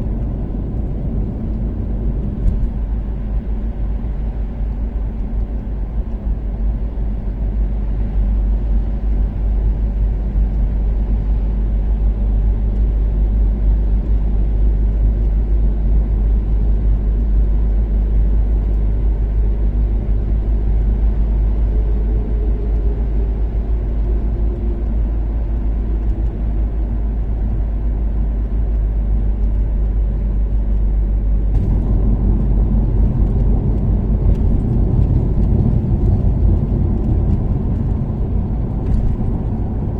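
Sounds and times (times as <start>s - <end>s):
car engine cruising: 0.0s - 39.9s
road rumble: 0.0s - 39.9s.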